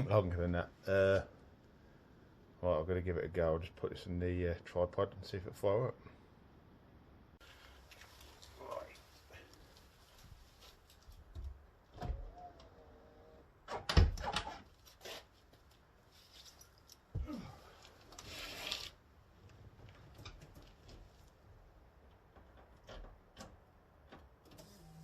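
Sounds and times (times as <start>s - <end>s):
knocks and clunks of handling: 22.0s - 24.4s.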